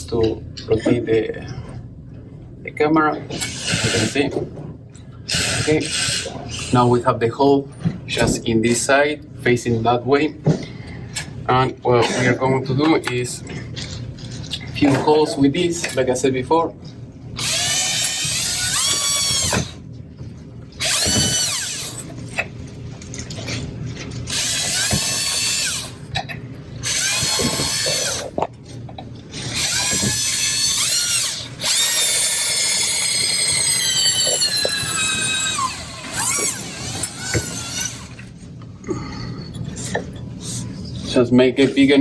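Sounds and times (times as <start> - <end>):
power drill boring: 3.4 - 4.2, 5.3 - 6.3, 17.3 - 19.8, 20.8 - 22.1, 24.3 - 26.0, 26.8 - 28.4, 29.4 - 38.2.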